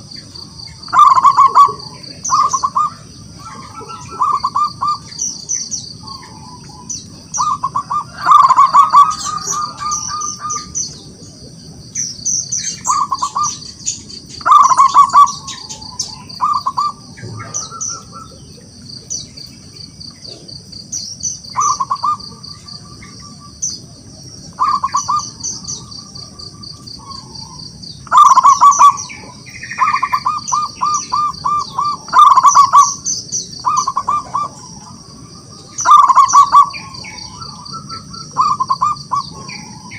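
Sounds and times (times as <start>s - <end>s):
dove cooing: 0.0s - 39.9s
high-pitched chirping: 12.4s - 18.4s, 24.6s - 39.9s.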